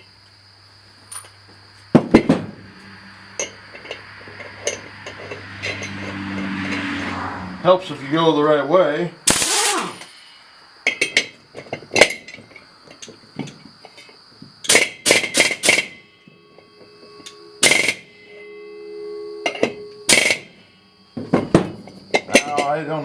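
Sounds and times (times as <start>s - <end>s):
metal clanks and knocks: 1.1s - 7.2s, 10.8s - 18.1s, 19.4s - 20.5s, 21.2s - 22.8s
ringing steel discs: 2.5s - 7.2s, 10.8s - 23.0s
faint steady hum: 8.8s - 23.0s.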